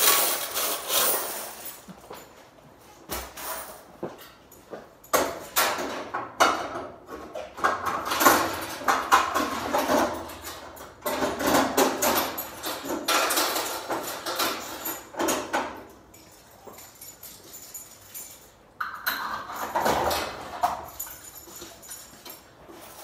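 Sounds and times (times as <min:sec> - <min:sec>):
coins clinking: 0:00.0 - 0:01.9.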